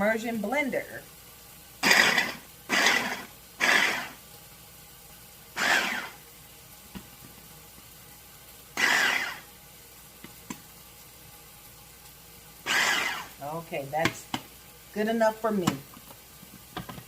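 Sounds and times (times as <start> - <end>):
blender chopping vegetables: 1.8 - 4.2, 5.6 - 6.2, 8.8 - 9.5, 12.7 - 13.4.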